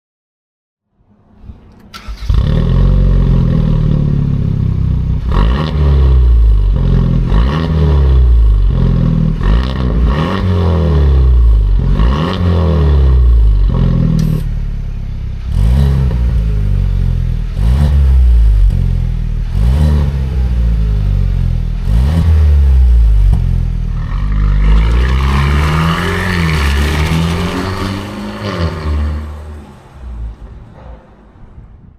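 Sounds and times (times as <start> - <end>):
car engine revving: 1.7 - 30.8.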